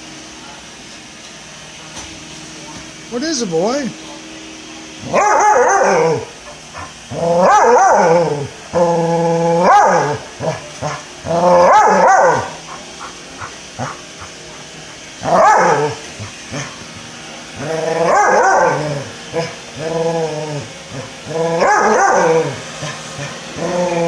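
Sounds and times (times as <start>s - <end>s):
dog barking and howling: 5.0s - 14.6s, 15.2s - 16.8s, 17.6s - 24.0s.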